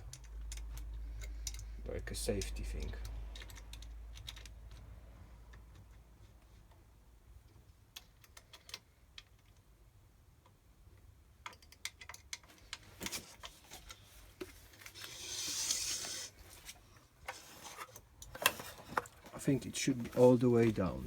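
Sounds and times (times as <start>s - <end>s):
scraping rustle: 13.0s - 21.0s.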